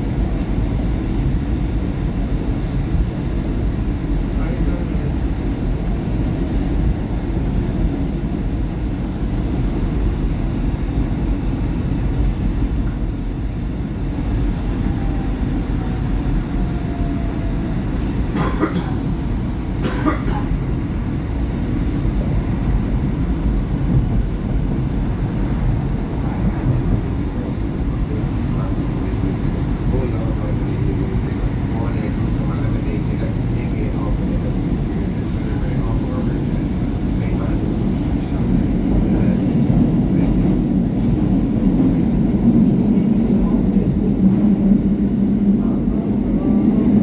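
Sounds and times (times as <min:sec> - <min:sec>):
subway car wheels and motors rumbling: 0:00.0 - 0:47.0.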